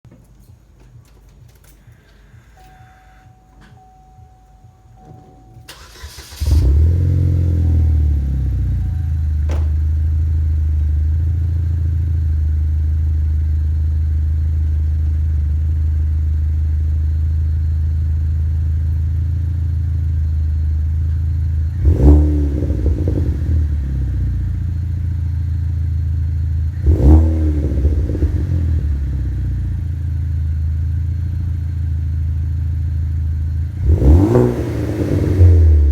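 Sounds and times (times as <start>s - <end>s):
car engine starting: 1.4s - 35.9s
deep exhaust idle: 4.9s - 35.9s
engine revving: 5.7s - 11.5s, 21.6s - 25.0s, 26.6s - 30.0s, 33.6s - 35.9s.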